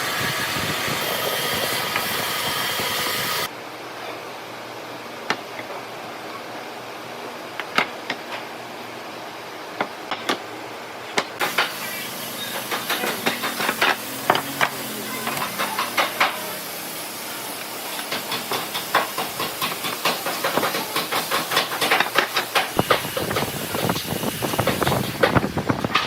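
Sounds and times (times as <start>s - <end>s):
hand tools knocking and scraping wood: 11.2s - 11.8s, 12.5s - 16.5s, 18.0s - 26.0s
steady hiss: 11.4s - 26.0s.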